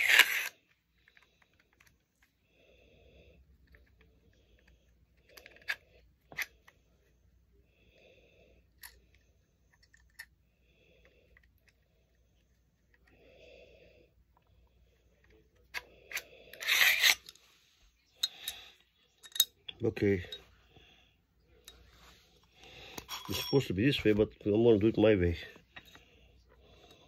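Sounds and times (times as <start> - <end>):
pistol parts clicking and scraping: 0.0 - 2.3, 3.6 - 6.8, 8.7 - 10.4, 15.2 - 17.4, 18.2 - 19.8
soft breaths: 0.5 - 27.0.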